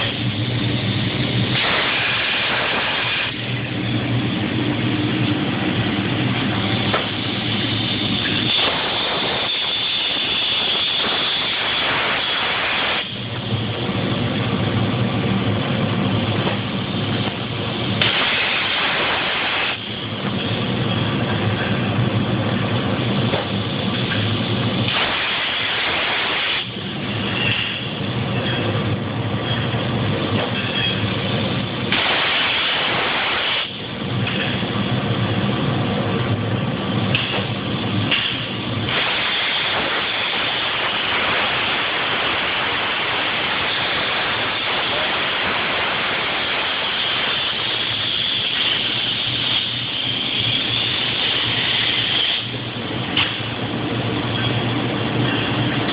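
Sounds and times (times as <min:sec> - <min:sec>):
low hum: 0:00.0 - 0:39.2
plasma cutter hissing: 0:00.0 - 0:55.9.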